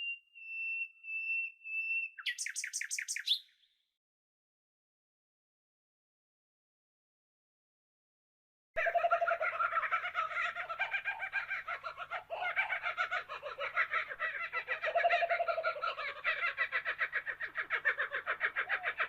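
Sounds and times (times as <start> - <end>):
bird chattering calls: 2.1 - 3.5.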